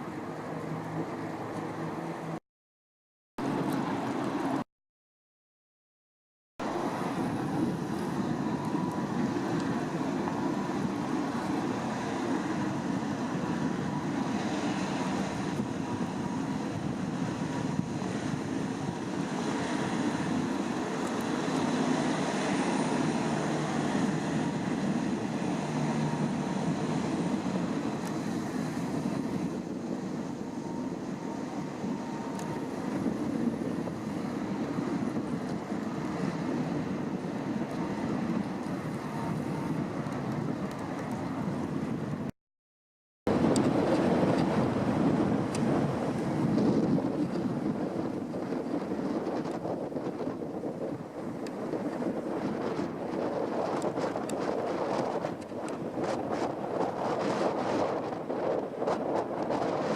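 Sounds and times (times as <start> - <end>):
boat engine drone: 0.0 - 2.4, 3.4 - 4.6, 6.6 - 42.3, 43.3 - 59.9
wind: 0.0 - 2.4, 3.4 - 4.7, 6.6 - 42.4, 43.2 - 59.9
water noise: 6.6 - 42.3.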